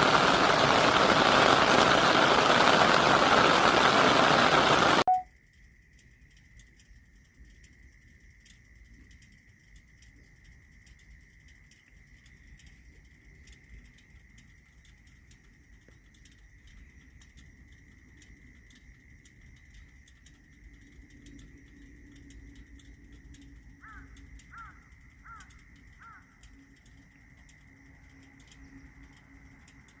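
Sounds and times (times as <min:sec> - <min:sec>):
faint clicks: 0:00.0 - 0:30.0
faint steady high tone: 0:04.8 - 0:05.4.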